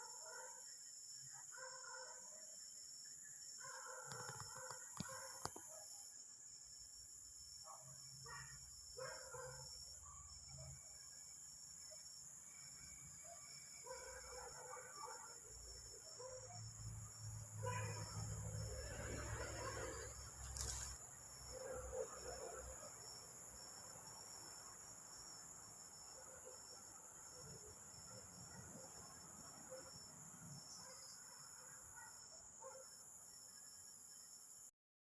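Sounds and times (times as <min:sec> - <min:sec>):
insect high-pitched trill: 0:02.4 - 0:34.6.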